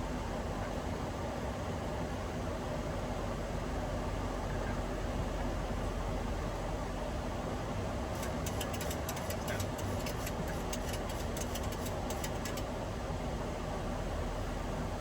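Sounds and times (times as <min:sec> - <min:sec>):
airflow and air conditioning rush: 0:00.0 - 0:15.0.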